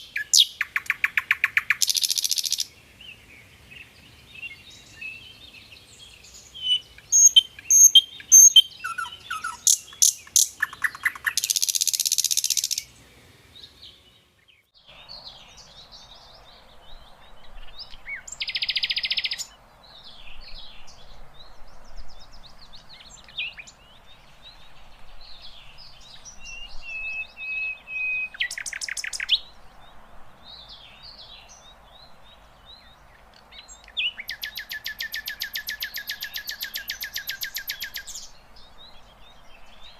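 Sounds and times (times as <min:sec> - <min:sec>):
bird singing chirps and whistles: 0:00.0 - 0:02.7, 0:04.4 - 0:12.9, 0:16.9 - 0:19.6, 0:25.2 - 0:29.5, 0:33.6 - 0:39.9
faint background hiss: 0:00.0 - 0:39.9.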